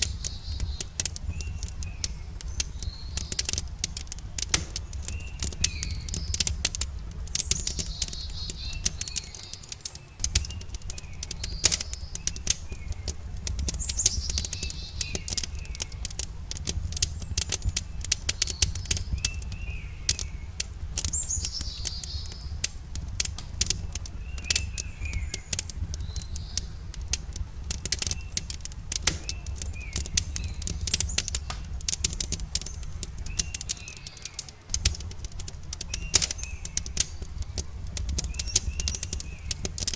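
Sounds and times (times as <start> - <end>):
birds chirping: 0.0 - 39.9
campfire crackling and popping: 0.0 - 39.9
high falling bird calls: 0.0 - 39.9
low steady rumble: 0.0 - 39.9.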